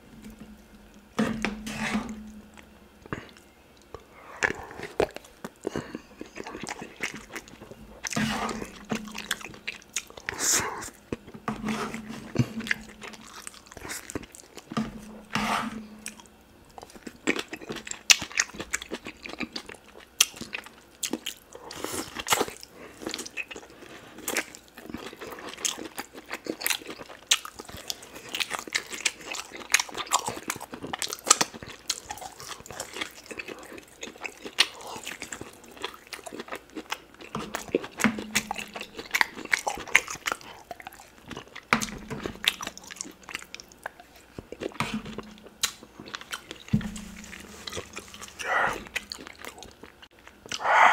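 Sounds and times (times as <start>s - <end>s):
chewing and biting meat: 16.0s - 50.9s.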